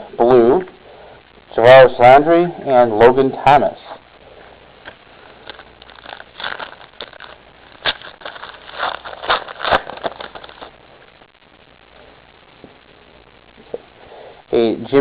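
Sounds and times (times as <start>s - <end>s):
card packaging scrapes and crackles: 5.4s - 10.7s.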